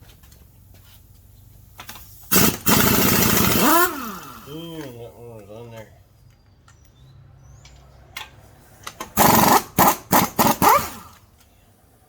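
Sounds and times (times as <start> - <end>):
impact wrench bursts: 1.8 - 4.7, 8.8 - 11.2.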